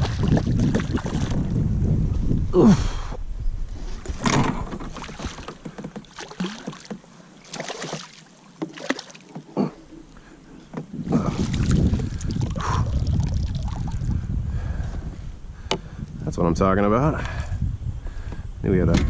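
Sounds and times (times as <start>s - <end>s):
water splashes: 0.0s - 1.6s, 4.4s - 9.7s, 11.1s - 14.2s.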